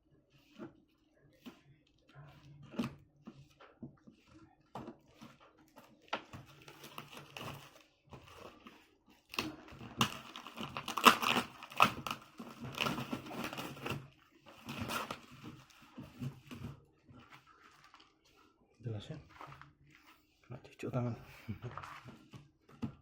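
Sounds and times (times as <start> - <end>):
wrapping crinkling and tearing: 5.8 - 15.9.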